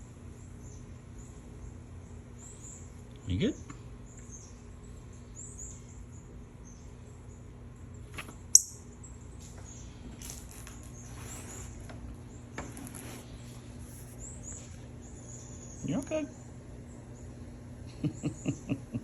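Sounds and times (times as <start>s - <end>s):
faint rustling: 9.9s - 15.0s.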